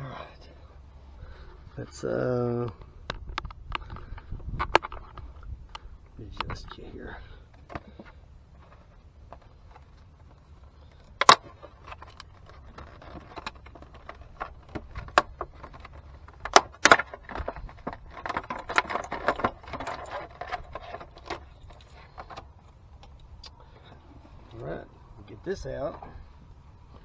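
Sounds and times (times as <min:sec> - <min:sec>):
small rattling and rustling: 0:11.2 - 0:22.4
hands clicking and knocking car parts: 0:16.5 - 0:17.0.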